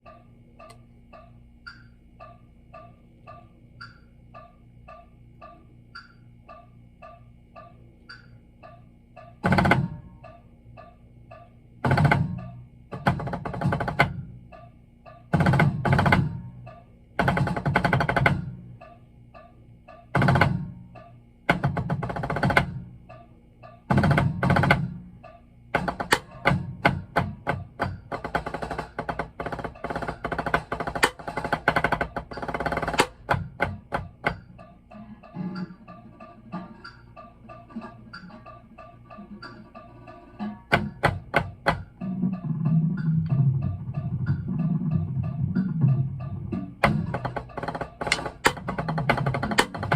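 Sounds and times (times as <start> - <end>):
metronome ticking: 0.0 - 49.9
drum rolls and strokes: 11.8 - 14.6, 15.3 - 18.9, 20.1 - 23.2, 23.9 - 49.9.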